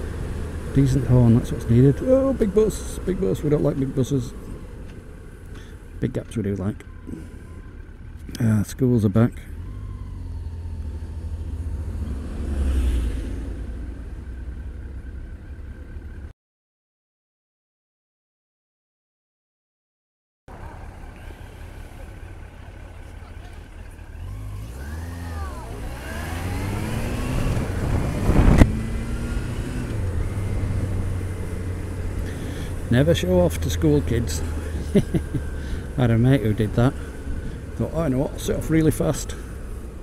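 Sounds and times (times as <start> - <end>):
motorcycle engine and road noise: 0.0 - 16.3, 20.5 - 40.0.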